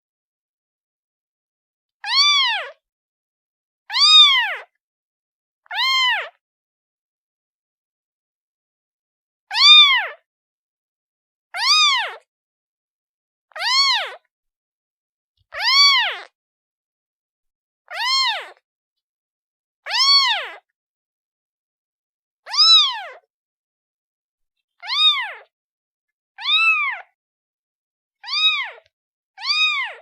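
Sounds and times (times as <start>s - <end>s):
kitten meowing: 2.0s - 2.8s, 3.9s - 4.7s, 5.7s - 6.4s, 9.5s - 10.2s, 11.6s - 12.2s, 13.6s - 14.2s, 15.6s - 16.3s, 17.9s - 18.6s, 19.9s - 20.6s, 22.5s - 23.2s, 24.8s - 25.5s, 26.4s - 27.2s, 28.2s - 30.0s.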